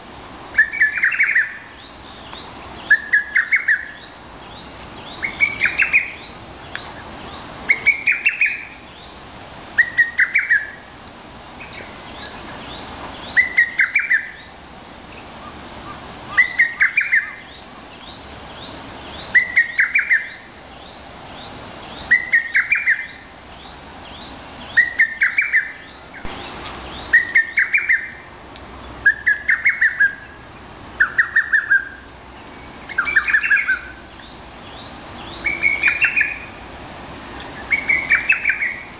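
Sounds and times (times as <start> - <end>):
cuckoo singing whistled notes: 0.5 - 1.7, 9.8 - 10.8, 19.3 - 20.4, 22.1 - 23.2, 24.7 - 26.3, 27.0 - 28.2, 35.4 - 36.6.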